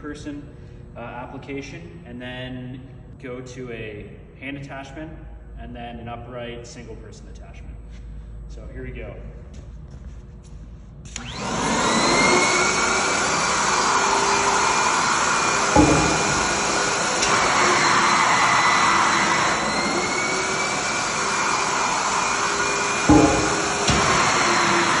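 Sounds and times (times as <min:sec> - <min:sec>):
blower whining and rushing air: 0:11.0 - 0:25.0
sharp thump: 0:15.8 - 0:16.5, 0:23.1 - 0:24.2.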